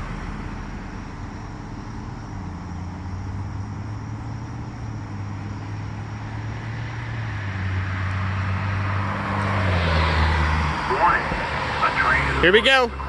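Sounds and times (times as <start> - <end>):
approaching vehicle rushing: 0.0 - 13.0
low engine hum: 0.0 - 13.0.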